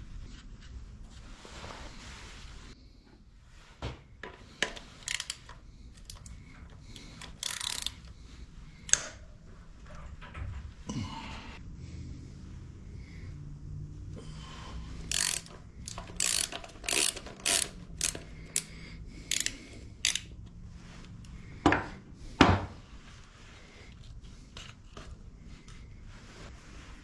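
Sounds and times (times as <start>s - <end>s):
ratchet wrench clicking: 4.6s - 8.2s, 15.0s - 20.5s.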